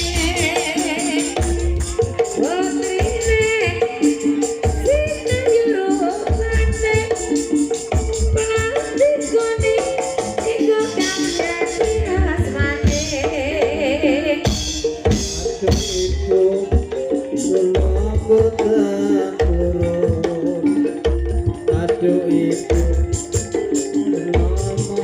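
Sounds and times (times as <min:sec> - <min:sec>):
gamelan music: 0:00.0 - 0:25.0
hand drums beating: 0:00.0 - 0:25.0.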